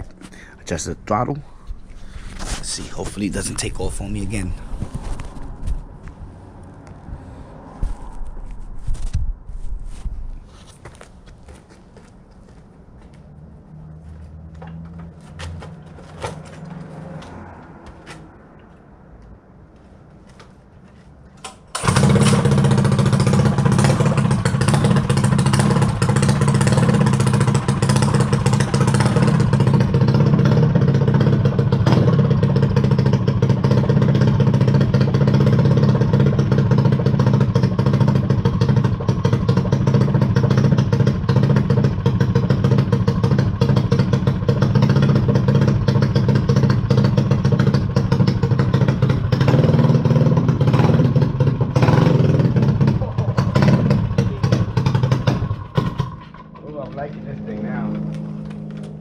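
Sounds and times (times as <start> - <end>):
small dirt bike engine: 21.4 - 59.0.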